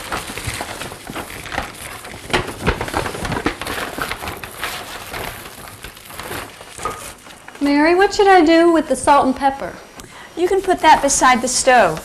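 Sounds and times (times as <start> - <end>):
groceries knocking on counter: 0.0 - 7.2.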